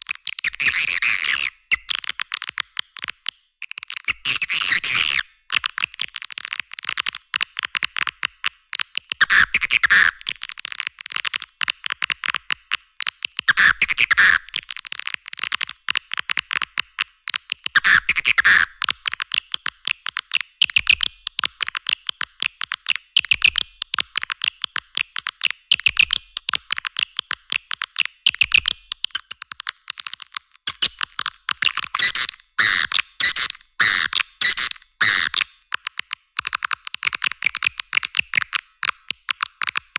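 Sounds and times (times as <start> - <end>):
recorded swiftlet chirps: 31.9 - 35.5.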